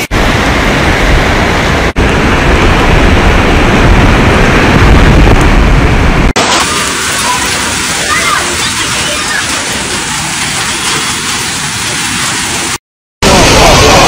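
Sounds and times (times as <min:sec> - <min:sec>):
heavy rain: 0:00.0 - 0:14.0
wind buffeting microphone: 0:00.2 - 0:07.0.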